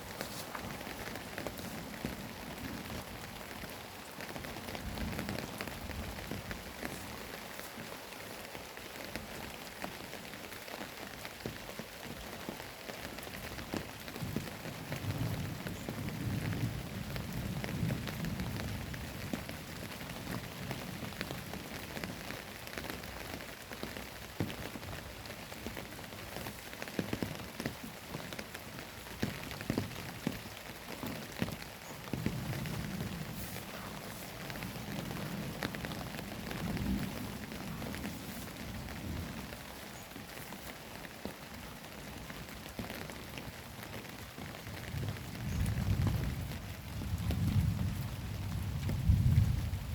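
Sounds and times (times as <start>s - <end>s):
heavy rain splattering: 0.0s - 49.9s
thunder rumbling: 29.2s - 39.8s, 44.8s - 49.9s.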